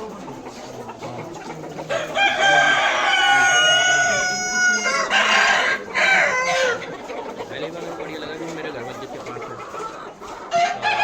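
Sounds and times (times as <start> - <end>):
chickens clucking: 0.0 - 11.0
rooster crowing: 1.9 - 6.8.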